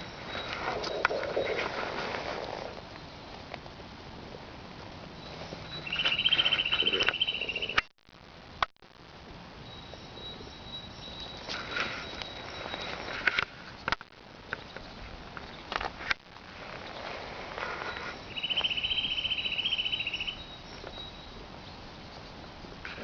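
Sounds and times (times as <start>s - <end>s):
outdoor background noise: 0.0s - 23.0s
bird trilling: 5.6s - 7.8s, 17.9s - 21.4s
sharp clicks and rustles: 11.5s - 18.2s.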